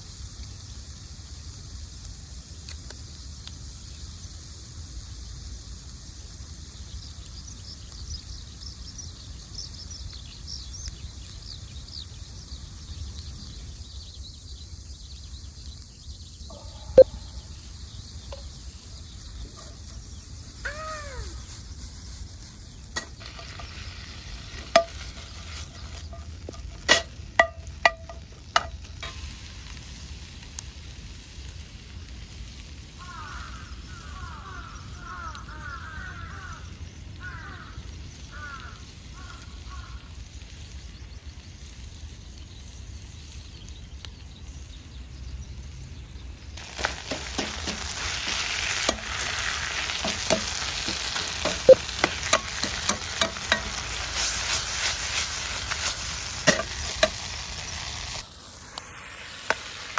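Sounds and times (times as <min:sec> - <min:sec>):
food sizzling in hot pan: 0:00.0 - 0:43.6, 0:46.4 - 0:59.9
metal utensils clinking on pan: 0:24.7 - 0:29.2, 0:46.8 - 0:54.9, 0:55.8 - 0:57.3
stirring clicks: 0:46.6 - 0:57.2.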